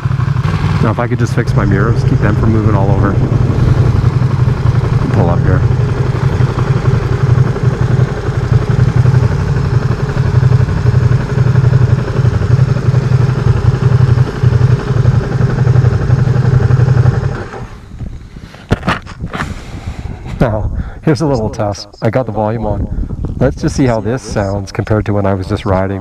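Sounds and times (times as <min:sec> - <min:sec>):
motorcycle engine idling: 0:00.0 - 0:18.3.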